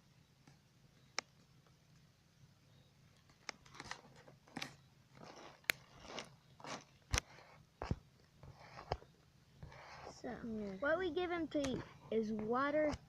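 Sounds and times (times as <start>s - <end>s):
bird bill clicking and snapping: 3.2s - 4.8s.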